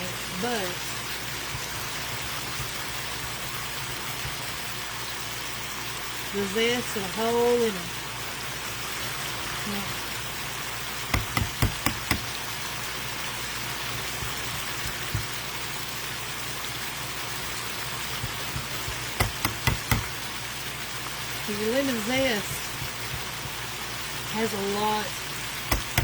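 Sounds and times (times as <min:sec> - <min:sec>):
chicken sizzling in a pan: 0:00.0 - 0:26.0
sharp taps: 0:11.1 - 0:12.4, 0:14.2 - 0:15.4, 0:18.2 - 0:20.2, 0:22.8 - 0:23.6, 0:25.7 - 0:26.0.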